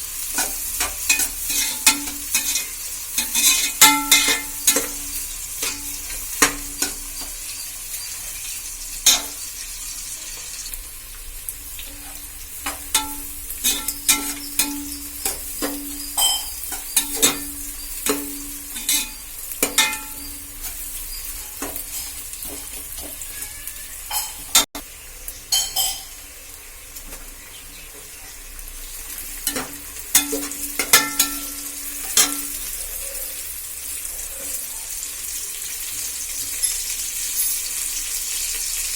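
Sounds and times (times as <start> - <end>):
food sizzling in hot oil: 0.0 - 38.9
metal spoon scraping a pot: 0.2 - 9.4, 11.8 - 24.7.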